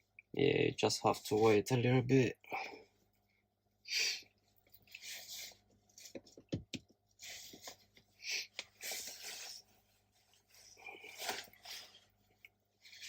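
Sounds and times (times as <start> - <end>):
faint rustling and handling: 4.4 - 13.0.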